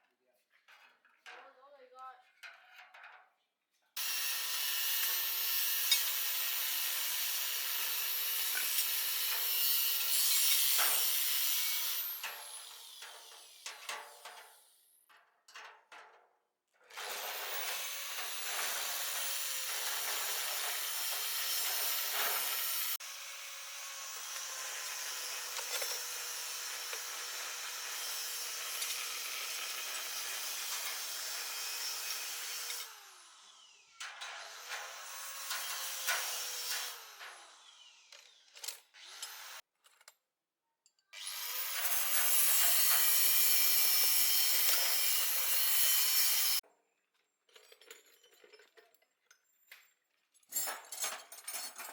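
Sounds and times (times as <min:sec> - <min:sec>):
power tool grinding: 0:04.0 - 0:14.7, 0:16.9 - 0:39.6, 0:41.2 - 0:46.6.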